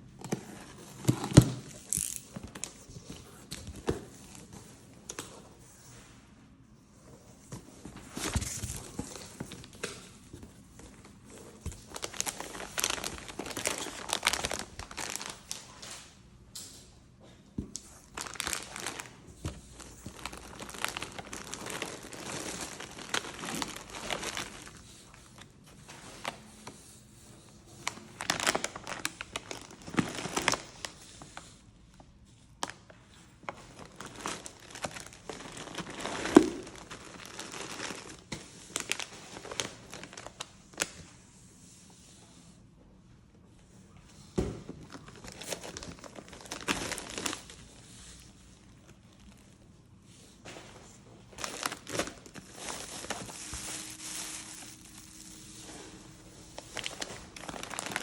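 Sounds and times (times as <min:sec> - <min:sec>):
packaging crinkling and tearing: 0:11.6 - 0:16.0, 0:18.0 - 0:25.5, 0:27.9 - 0:31.0, 0:33.5 - 0:41.0, 0:44.8 - 0:47.9, 0:51.3 - 0:55.4, 0:56.1 - 0:58.0.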